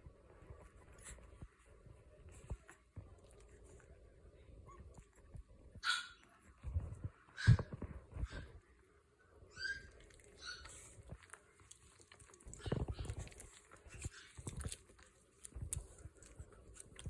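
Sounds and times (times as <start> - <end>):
puppy yipping: 5.8 - 6.3, 7.4 - 8.5, 9.5 - 11.1.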